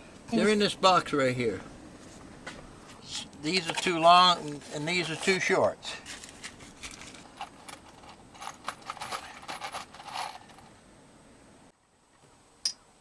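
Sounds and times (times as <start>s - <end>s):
small screws clinking in a box: 6.8s - 10.7s.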